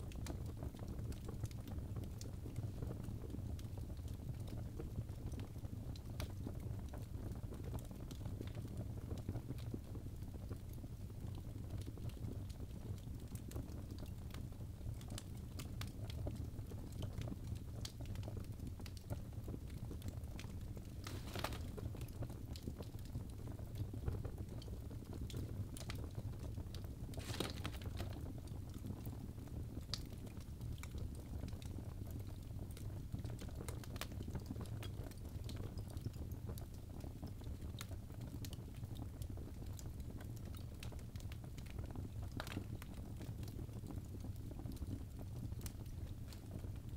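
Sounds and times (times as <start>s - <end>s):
fire burning with crackles: 0.0s - 46.9s
loud pops from fire: 20.4s - 22.8s, 25.2s - 29.2s.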